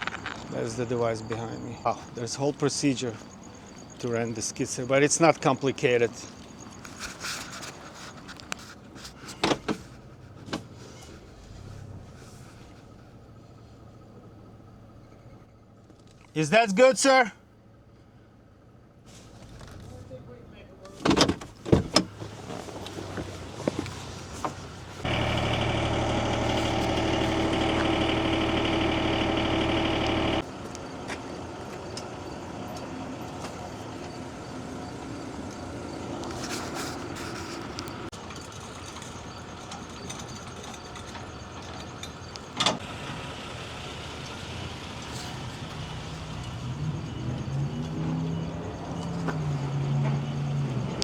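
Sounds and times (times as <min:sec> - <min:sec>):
quiet vehicle noise: 0:00.0 - 0:51.0
loud engine running: 0:24.9 - 0:31.8.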